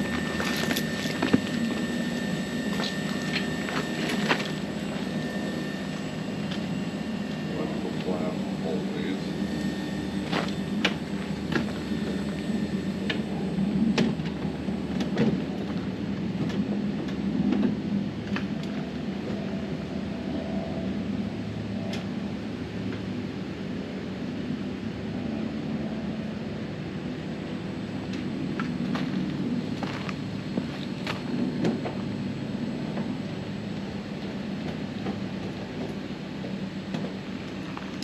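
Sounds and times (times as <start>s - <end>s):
heat pump humming: 0.0s - 38.0s.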